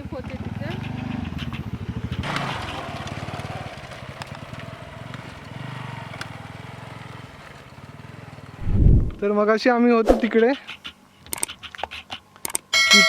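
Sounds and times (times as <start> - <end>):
motorcycle engine at low revs: 0.0 - 9.3
rush of noise: 8.6 - 9.3
scattered clicks: 10.3 - 12.7.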